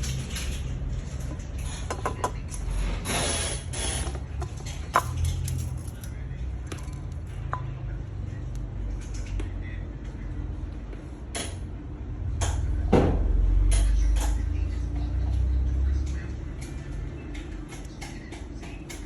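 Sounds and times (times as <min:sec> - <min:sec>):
clicking and scraping: 0:04.0 - 0:07.4.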